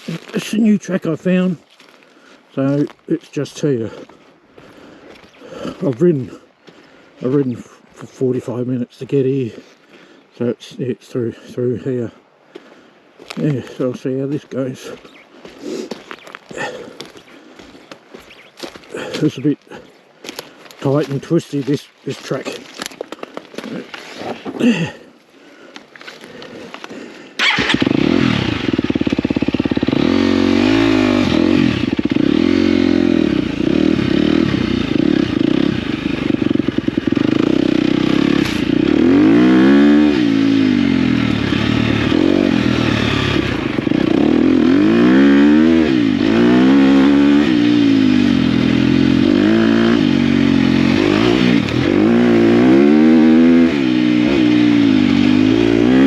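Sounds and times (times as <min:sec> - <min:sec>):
dirt bike engine revving: 0:27.4 - 0:56.0.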